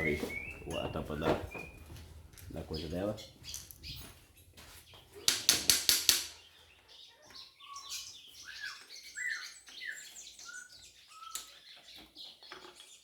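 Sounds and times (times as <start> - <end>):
bird chirping whistles: 0.0 - 1.9.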